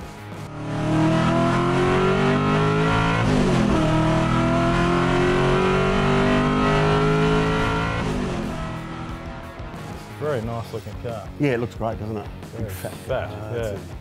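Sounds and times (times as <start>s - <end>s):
race car engine accelerating: 0.2s - 10.2s.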